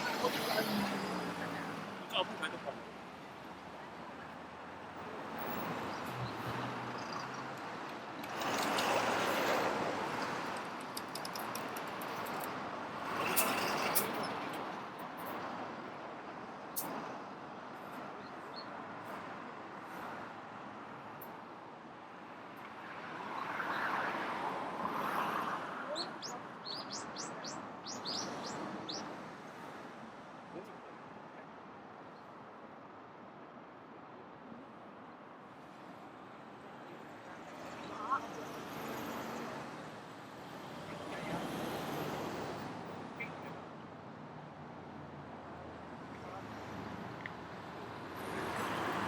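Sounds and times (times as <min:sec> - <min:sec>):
steady traffic noise: 0:00.0 - 0:49.0
small birds chirping: 0:25.9 - 0:29.1.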